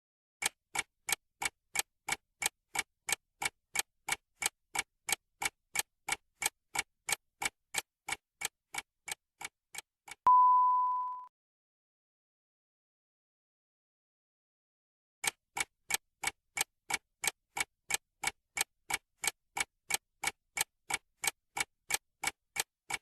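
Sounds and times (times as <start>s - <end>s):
clock-like ticking: 0.4s - 10.2s, 15.2s - 23.0s
steady single-pitch beep: 10.3s - 11.3s.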